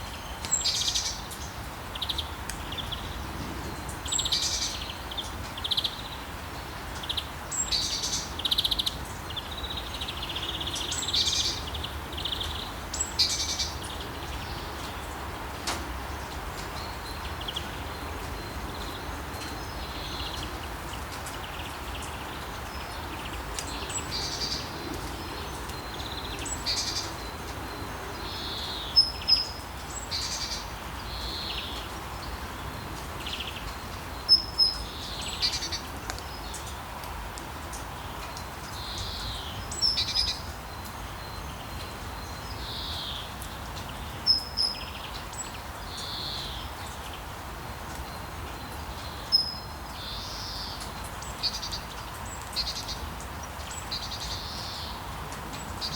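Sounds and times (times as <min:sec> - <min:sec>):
songbirds chirping: 0:00.0 - 0:55.9
steady rain hiss: 0:00.0 - 0:55.9.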